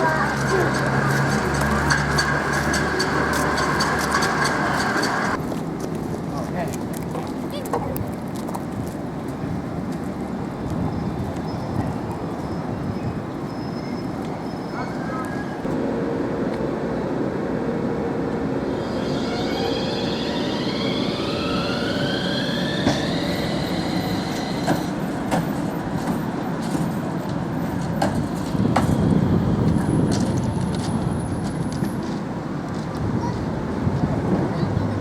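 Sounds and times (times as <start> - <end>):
tram wheels rumbling on rail: 0.0 - 7.9, 8.5 - 35.0
electric motor whine: 18.6 - 25.3.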